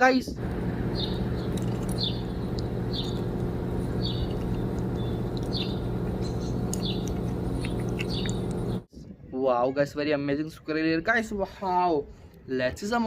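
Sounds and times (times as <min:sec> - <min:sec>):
steady low hum: 0:00.3 - 0:08.9.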